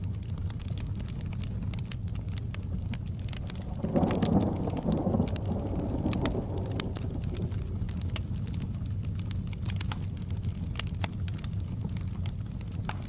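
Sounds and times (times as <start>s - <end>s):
fireplace crackling: 0.0s - 13.0s
steady rain: 0.0s - 13.0s
distant thunder rumbling: 3.1s - 9.3s.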